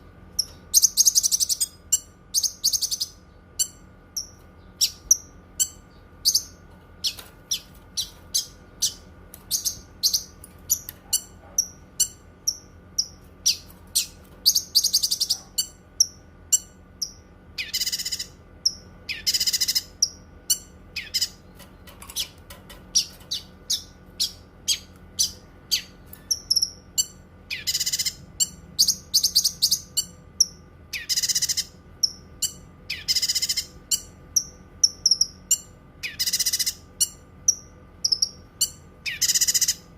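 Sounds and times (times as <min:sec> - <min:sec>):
songbird chirping: 0:00.4 - 0:22.4.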